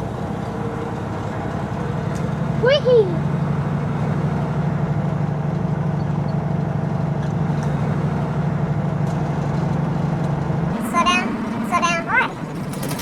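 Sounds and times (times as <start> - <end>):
truck diesel engine drone: 0.0 - 13.0.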